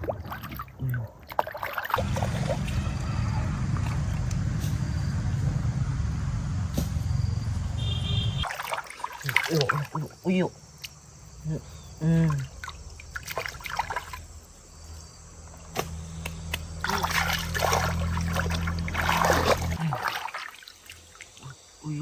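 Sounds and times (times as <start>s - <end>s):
water splashing by hand: 0.0s - 3.0s, 8.4s - 10.2s, 12.3s - 14.4s, 15.8s - 21.6s
low steady hum: 2.0s - 8.4s.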